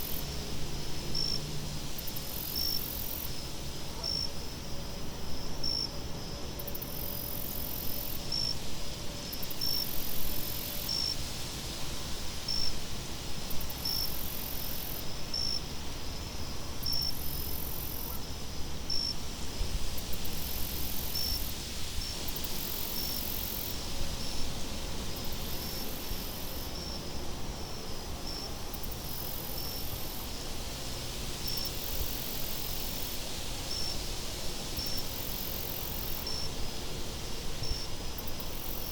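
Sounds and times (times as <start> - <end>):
insects chirping: 2.0 - 4.8, 13.5 - 24.5, 25.1 - 38.9
high buzzing insect trills: 22.2 - 38.9.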